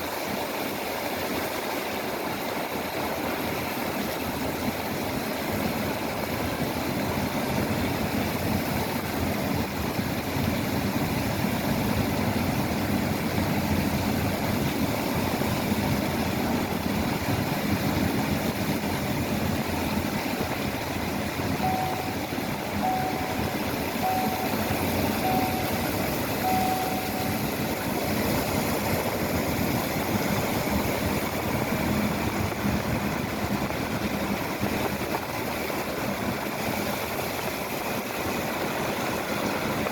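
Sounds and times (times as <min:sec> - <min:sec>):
machinery engines running: 0:06.2 - 0:37.8
short beeps: 0:21.6 - 0:28.0.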